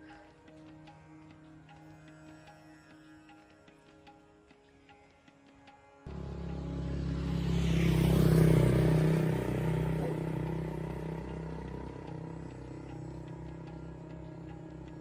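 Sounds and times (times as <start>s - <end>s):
vehicle engine passing by: 6.1s - 15.0s.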